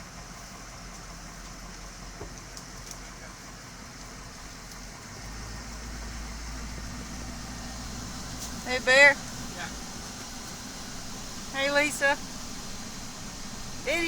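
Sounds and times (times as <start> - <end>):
engine idling: 0.0 - 14.0
steady hiss: 6.5 - 14.0.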